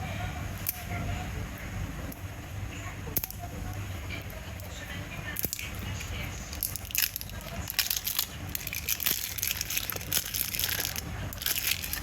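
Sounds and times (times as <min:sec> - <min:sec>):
plastic packaging crinkling: 0:06.5 - 0:12.0.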